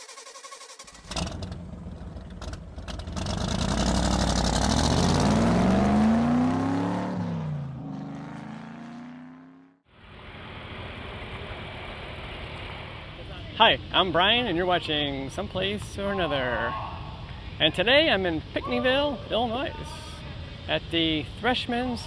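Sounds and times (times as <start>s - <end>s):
engine revving: 0.8s - 9.8s.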